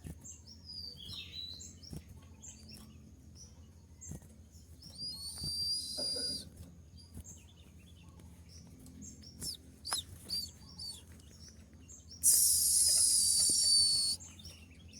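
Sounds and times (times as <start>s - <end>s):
bird sharp chirps: 5.0s - 6.4s, 9.4s - 11.0s, 12.1s - 14.5s
bird high-pitched trill: 5.1s - 6.4s, 12.2s - 14.2s.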